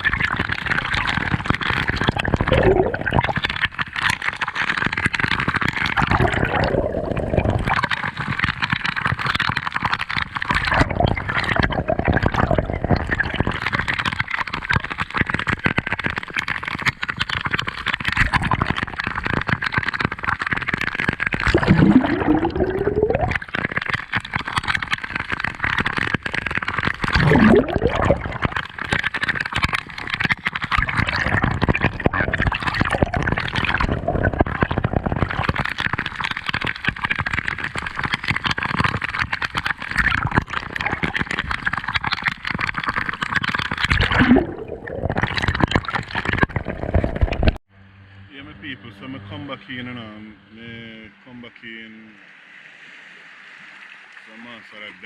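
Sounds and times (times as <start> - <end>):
seawater sloshing and gurgling: 0.0 - 47.6.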